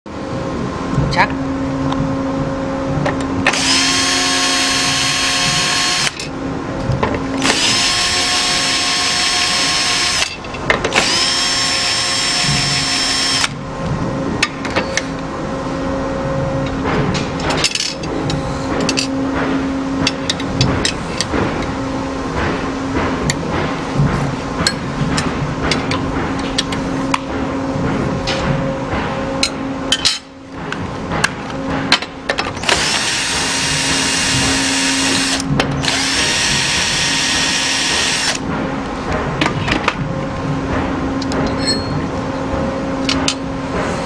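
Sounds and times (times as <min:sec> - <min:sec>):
power drill whining: 0:03.5 - 0:06.2, 0:07.4 - 0:10.2, 0:11.0 - 0:13.5, 0:32.6 - 0:38.4.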